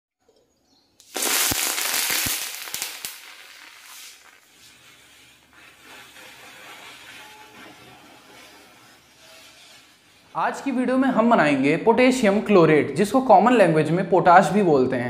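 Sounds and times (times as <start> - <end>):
chemical mixture fizzing and popping: 1.0 - 7.1.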